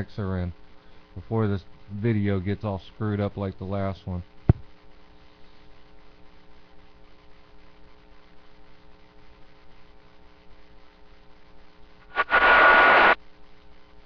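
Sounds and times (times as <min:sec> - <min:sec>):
mains hum: 0:00.0 - 0:14.0
radio receiver hiss: 0:12.0 - 0:13.2
loud burst of radio static: 0:12.1 - 0:13.2.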